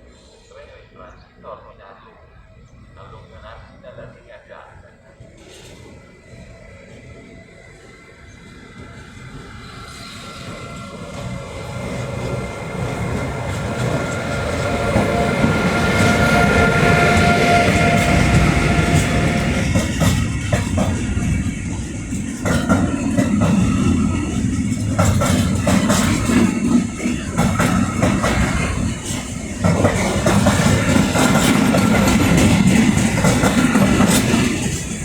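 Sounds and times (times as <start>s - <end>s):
freight train rumbling: 0.0s - 35.0s
train wheels clacking on rail joints: 10.4s - 35.0s.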